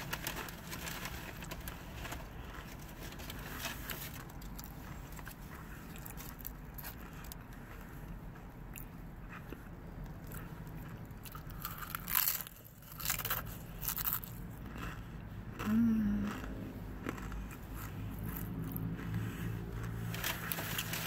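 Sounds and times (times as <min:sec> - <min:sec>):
chewing with wet mouth clicks: 0:04.3 - 0:20.1.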